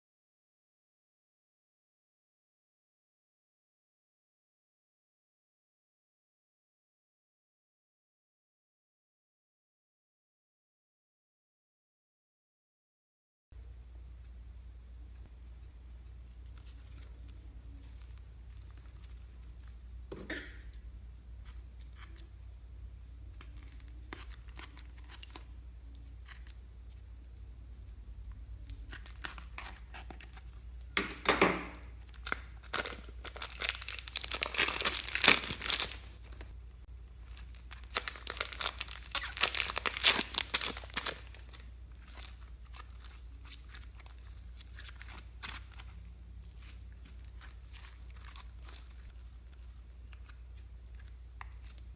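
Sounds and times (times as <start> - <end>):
slime crackling when squeezed: 32.0 - 36.5, 37.2 - 45.9.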